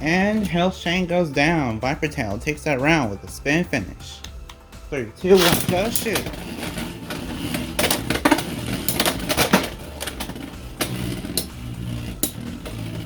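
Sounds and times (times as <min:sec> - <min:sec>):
spinning tops whirring: 0:05.2 - 0:13.0
spinning tops clacking: 0:05.3 - 0:13.0.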